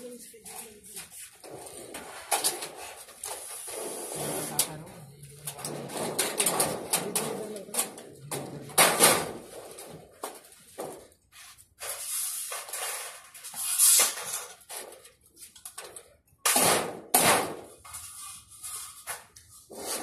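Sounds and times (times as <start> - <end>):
metal rails clicking and knocking: 4.6 - 11.0.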